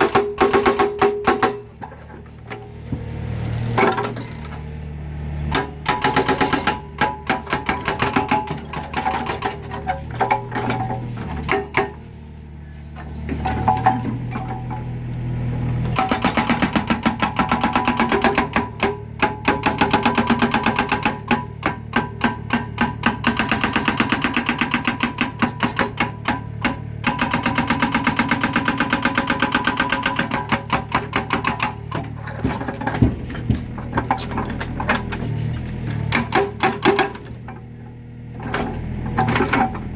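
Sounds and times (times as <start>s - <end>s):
hydraulic breaker hammering concrete: 0.0s - 2.0s, 5.4s - 12.2s, 15.9s - 37.8s
excavator engine humming: 0.0s - 39.9s.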